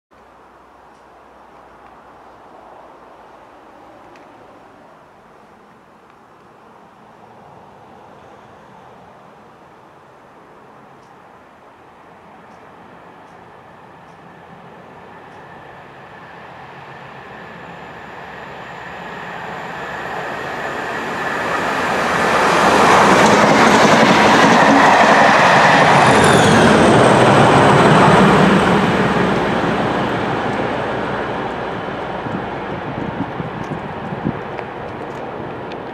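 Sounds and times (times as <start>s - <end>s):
diesel locomotive engine: 12.1s - 35.9s
train wheels on rails: 12.4s - 35.9s.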